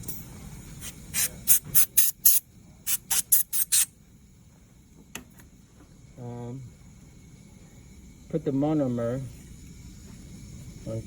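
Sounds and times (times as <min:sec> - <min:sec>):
air syringe puffs: 0:00.8 - 0:03.9.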